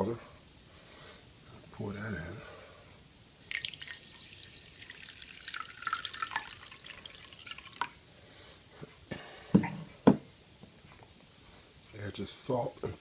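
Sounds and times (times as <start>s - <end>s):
water pouring into a bowl: 3.4s - 8.1s.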